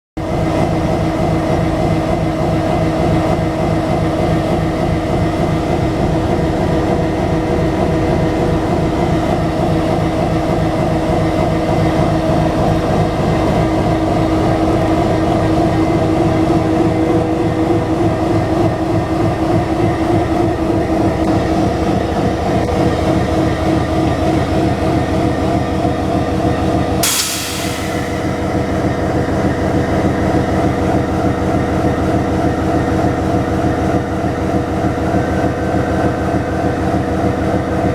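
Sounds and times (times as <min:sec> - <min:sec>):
sharp hiss burst: 0:27.0 - 0:28.8.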